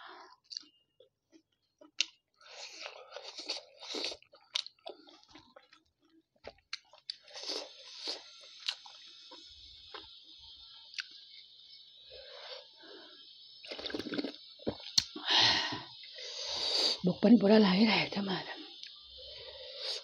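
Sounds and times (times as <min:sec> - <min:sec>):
wet chewing and mouth smacks: 0:00.4 - 0:10.2, 0:10.9 - 0:11.5, 0:18.8 - 0:19.0.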